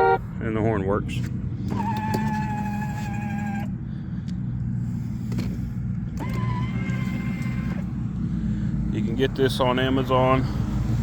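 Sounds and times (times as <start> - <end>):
electronic toy horn beep: 0.0 - 0.2
steady low hum: 3.7 - 6.2.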